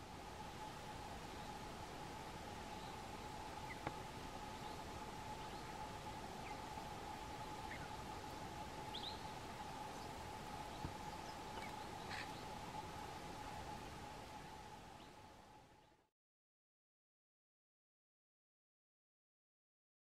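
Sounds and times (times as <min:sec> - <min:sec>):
faint steady hum: 0:00.0 - 0:16.1
steady hiss: 0:00.0 - 0:16.1
faint bird chirps: 0:02.6 - 0:16.1.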